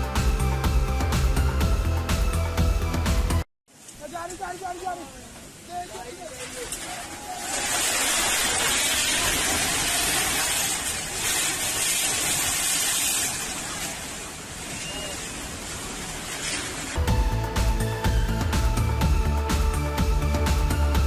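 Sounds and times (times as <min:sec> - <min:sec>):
music with a beat: 0:00.0 - 0:03.4, 0:17.0 - 0:21.0
river rushing: 0:03.7 - 0:17.6.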